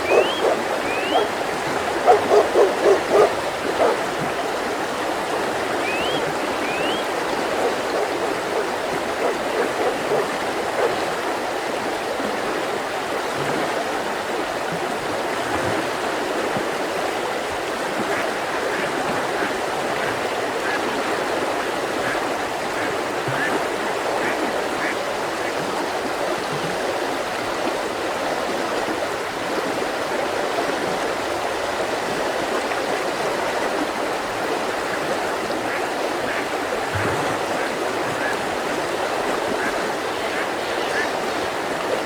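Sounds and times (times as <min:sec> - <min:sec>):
bird whistling rising notes: 0:00.0 - 0:01.3, 0:05.8 - 0:07.1
mountain river rushing: 0:00.0 - 0:42.0.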